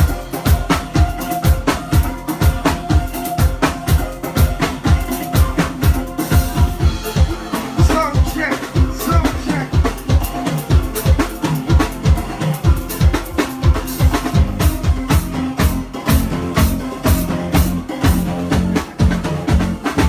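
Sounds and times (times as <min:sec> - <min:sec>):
live band playing uptempo music: 0:00.0 - 0:20.0
kick drum and snare beat: 0:06.6 - 0:10.3.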